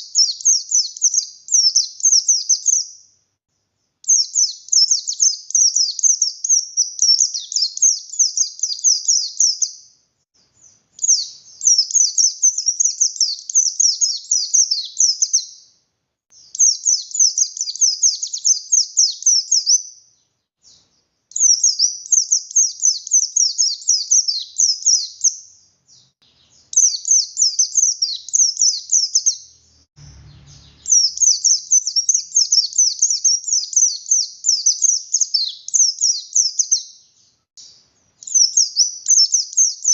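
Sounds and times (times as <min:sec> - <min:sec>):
bird singing high falling notes: 0:26.0 - 0:35.4.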